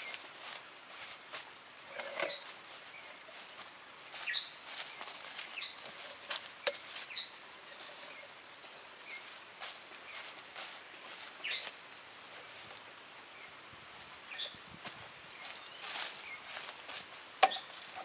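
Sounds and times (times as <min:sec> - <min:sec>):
bamboo poles knocking on grass: 0:00.0 - 0:08.3, 0:14.4 - 0:18.0
birds chirping: 0:00.0 - 0:18.0
steady outdoor hiss: 0:00.0 - 0:18.0.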